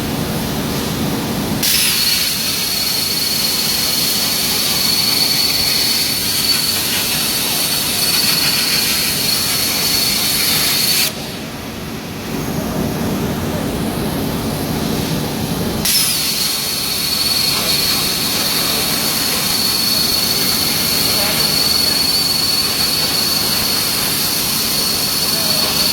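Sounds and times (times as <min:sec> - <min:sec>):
plasma torch hissing and whining: 0:01.6 - 0:11.4, 0:15.8 - 0:25.9.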